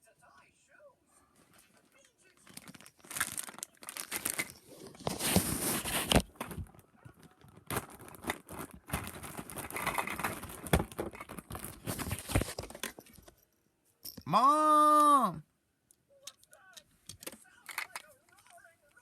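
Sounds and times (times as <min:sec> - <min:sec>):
crinkling and rustling: 0:01.4 - 0:13.5, 0:16.3 - 0:19.0.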